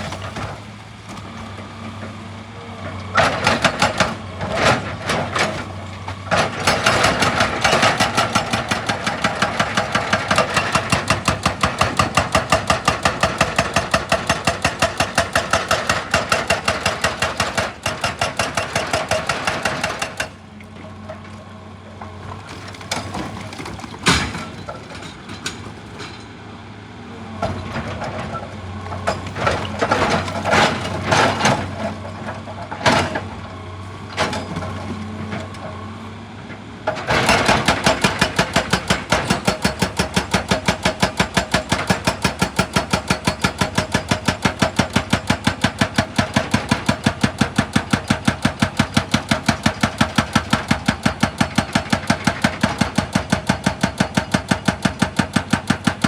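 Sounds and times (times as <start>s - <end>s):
hydraulic breaker hammer pounding: 3.2s - 21.2s, 22.1s - 26.3s, 27.4s - 35.8s, 36.9s - 56.0s
diesel engine running: 14.8s - 51.6s.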